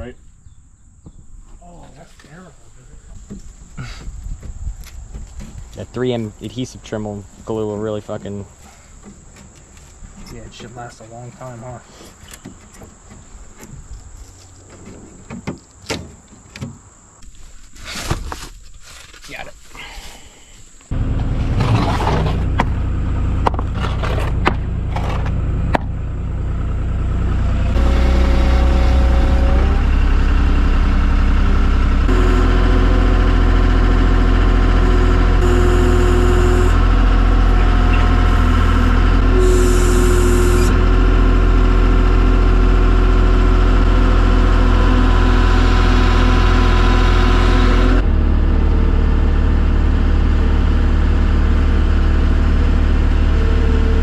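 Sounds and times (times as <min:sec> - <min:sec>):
heavy diesel engine running: 0:20.9 - 0:54.0.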